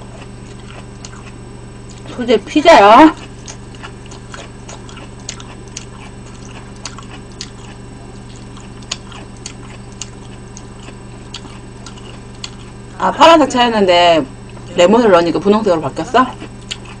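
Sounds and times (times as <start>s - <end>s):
person chewing food: 0.0s - 2.1s, 3.2s - 12.9s, 16.3s - 17.0s
low electrical hum: 0.0s - 17.0s.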